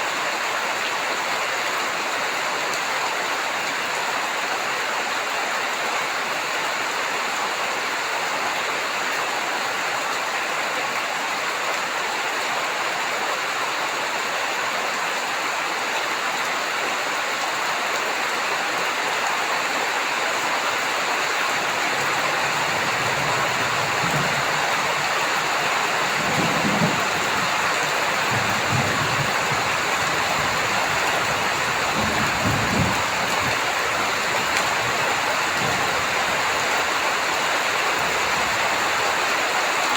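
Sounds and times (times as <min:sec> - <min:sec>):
heavy rain falling: 0:00.0 - 0:39.9
thunder rumbling: 0:21.6 - 0:37.3.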